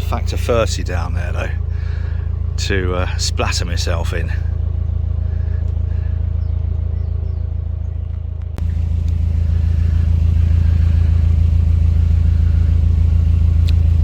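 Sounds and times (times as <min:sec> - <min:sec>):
diesel engine running: 0:00.0 - 0:14.0
click: 0:13.6 - 0:13.8.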